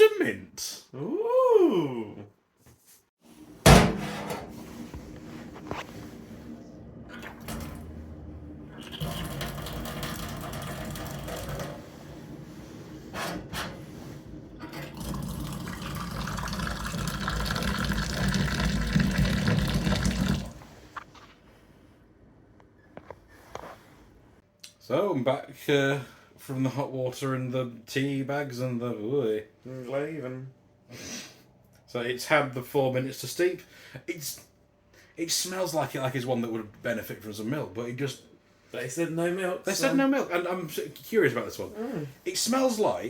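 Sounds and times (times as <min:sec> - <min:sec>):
water poured into a vessel: 0:08.7 - 0:11.7, 0:14.7 - 0:20.6.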